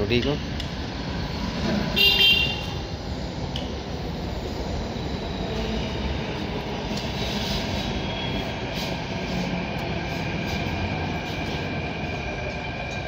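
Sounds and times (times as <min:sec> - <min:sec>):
metro train rumbling past: 0:00.0 - 0:13.0
high squeal: 0:07.2 - 0:09.0.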